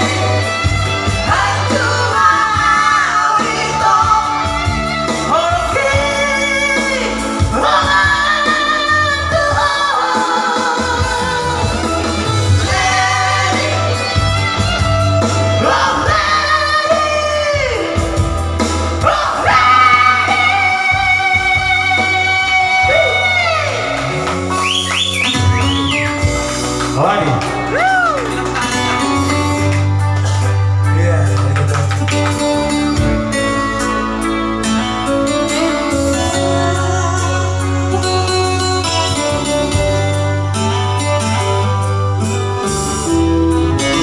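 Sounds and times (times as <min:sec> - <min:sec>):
people singing: 0:00.0 - 0:14.5, 0:15.5 - 0:18.0, 0:19.0 - 0:24.1
bass: 0:00.0 - 0:44.0
guitar: 0:00.0 - 0:44.0.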